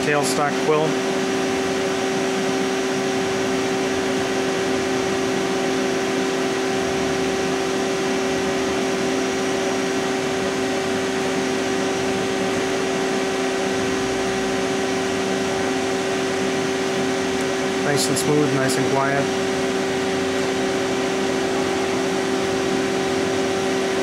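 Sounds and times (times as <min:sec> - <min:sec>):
man speaking: 0:00.0 - 0:01.0, 0:17.8 - 0:19.3
lathe humming and whirring: 0:00.0 - 0:24.0.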